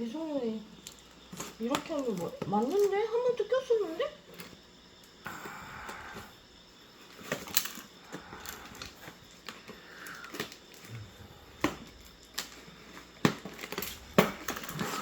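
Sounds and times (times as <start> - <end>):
packaging rustling: 11.6 - 15.0.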